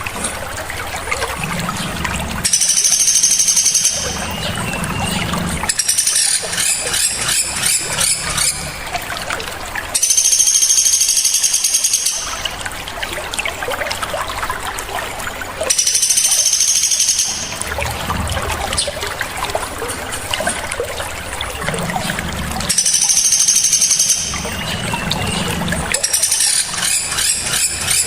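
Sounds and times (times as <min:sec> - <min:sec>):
songbird rapid trill: 0:02.5 - 0:04.6, 0:05.7 - 0:08.6, 0:10.0 - 0:12.4, 0:15.7 - 0:17.6, 0:22.7 - 0:28.0.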